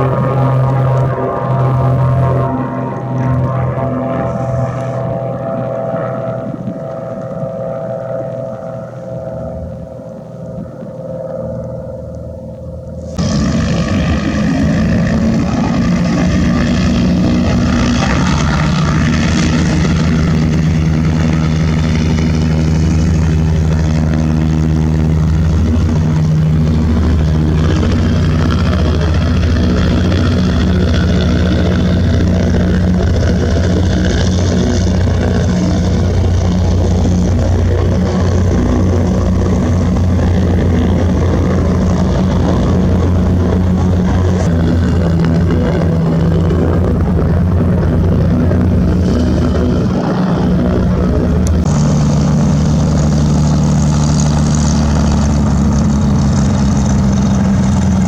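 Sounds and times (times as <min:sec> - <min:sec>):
propeller aircraft engine drone: 0:00.0 - 0:58.0.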